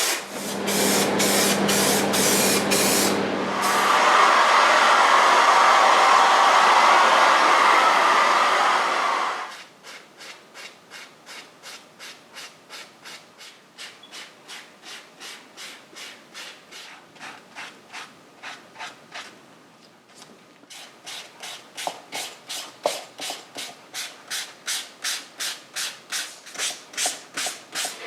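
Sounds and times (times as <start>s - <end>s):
loud rushing hiss: 0.0s - 9.5s.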